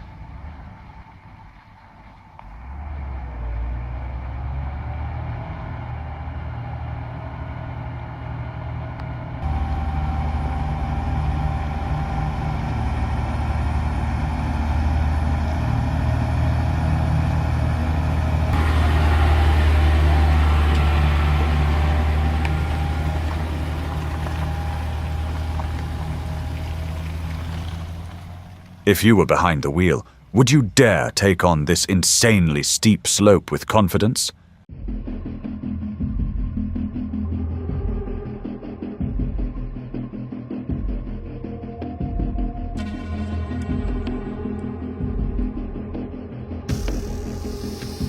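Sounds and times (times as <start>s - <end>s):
heavy truck engines rumbling: 0.0s - 34.6s.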